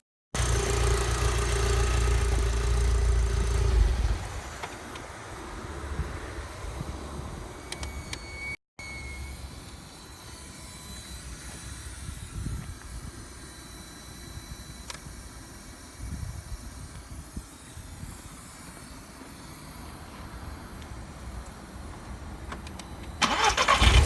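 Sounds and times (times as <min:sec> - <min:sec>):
car engine low rumble: 0:00.4 - 0:07.7.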